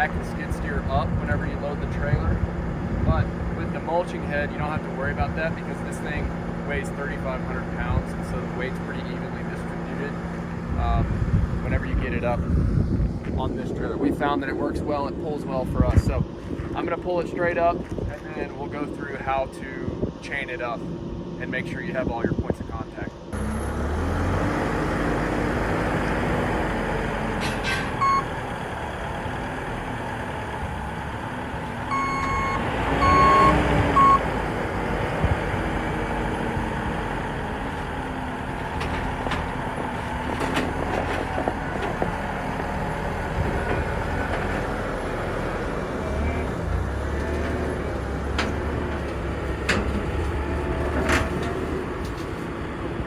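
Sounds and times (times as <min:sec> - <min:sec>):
diesel engine revving: 0:00.0 - 0:15.2, 0:23.2 - 0:53.0
short electronic warning beeps: 0:28.0 - 0:28.3, 0:31.9 - 0:34.3.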